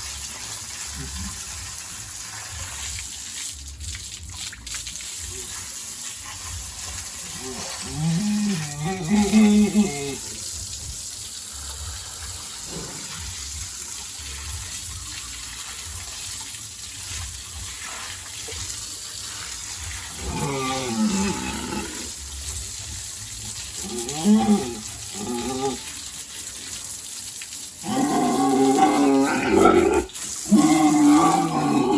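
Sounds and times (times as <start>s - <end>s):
water running: 0.0s - 31.9s
pigs squealing: 7.6s - 10.3s, 20.1s - 22.1s, 27.8s - 31.9s.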